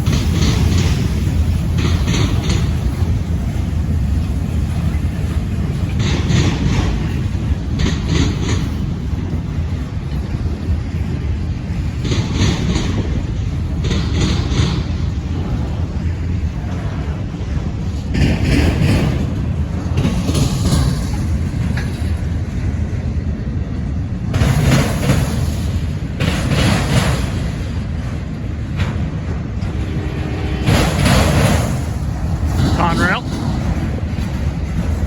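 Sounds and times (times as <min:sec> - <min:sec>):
wheels clacking over rail joint: 0:00.0 - 0:23.1, 0:24.2 - 0:35.0
freight train cars rumbling past: 0:00.0 - 0:35.0.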